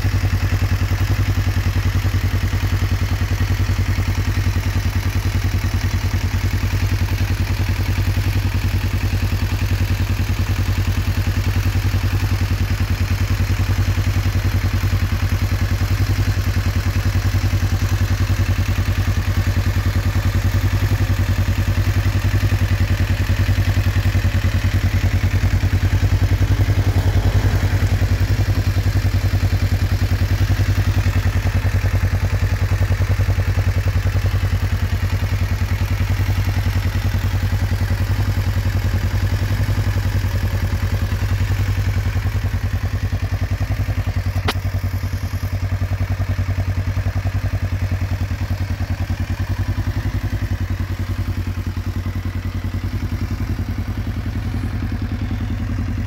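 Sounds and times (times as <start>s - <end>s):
motorcycle engine idling: 0.0s - 56.0s
sharp click: 44.3s - 45.2s.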